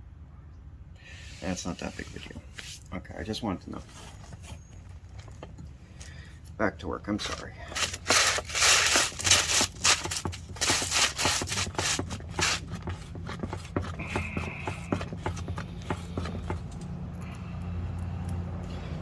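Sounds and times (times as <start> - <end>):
hands rubbing and scraping: 1.2 - 5.3, 7.2 - 16.8.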